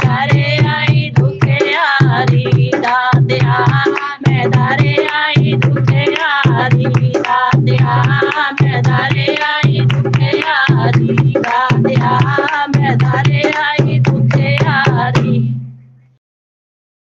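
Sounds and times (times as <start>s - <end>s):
tabla and drum beat: 0.0s - 16.0s.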